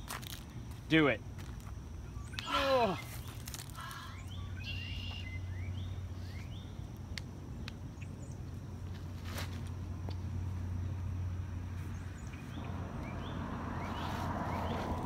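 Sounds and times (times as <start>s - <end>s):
bird rising chirps: 2.1s - 6.8s, 11.9s - 15.0s.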